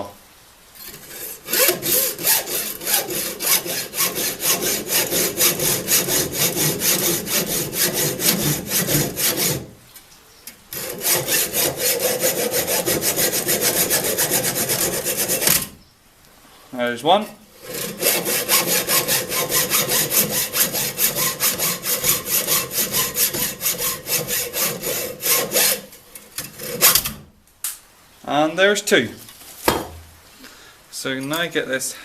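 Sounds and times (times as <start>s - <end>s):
hacksaw cutting metal: 0.8s - 9.7s, 10.7s - 15.8s, 17.6s - 27.2s.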